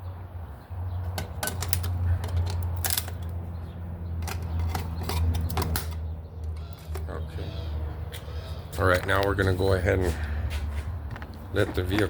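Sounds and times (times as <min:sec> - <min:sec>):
tools clicking and tapping: 0:01.1 - 0:03.4, 0:04.2 - 0:07.1.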